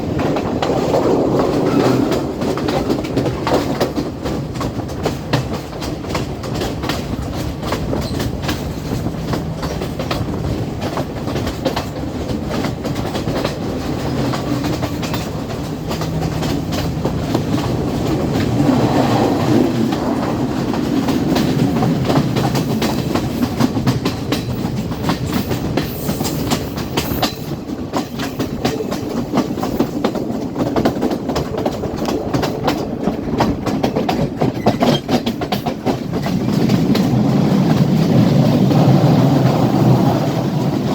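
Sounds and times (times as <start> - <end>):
train rumbling along track: 0.0 - 40.9
wheels clacking over rail joints: 0.0 - 40.9.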